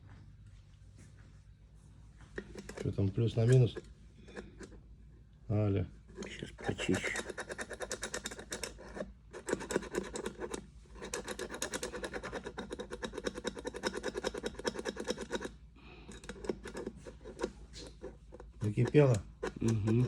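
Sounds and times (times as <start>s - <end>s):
rapid scraping: 6.1s - 15.4s.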